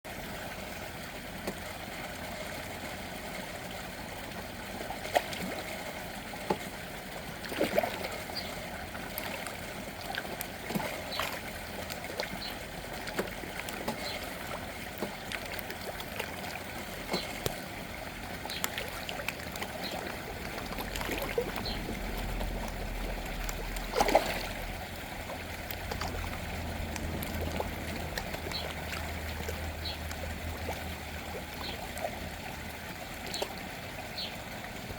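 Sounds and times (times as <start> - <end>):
small waterfall splashing: 0.1 - 34.9
sharp splashes and plops: 7.3 - 33.6.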